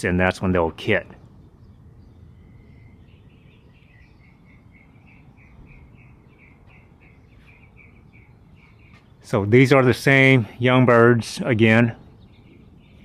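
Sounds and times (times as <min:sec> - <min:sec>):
small bird chirping: 0:01.1 - 0:09.3, 0:12.0 - 0:13.0.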